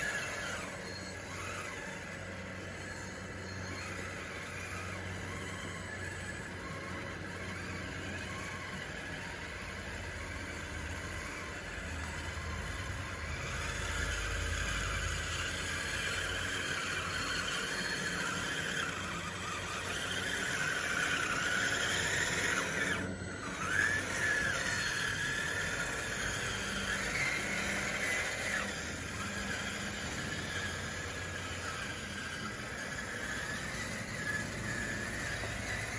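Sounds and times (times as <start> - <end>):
electric motor whining: 0.0 - 35.9
tracks squealing: 0.0 - 35.9.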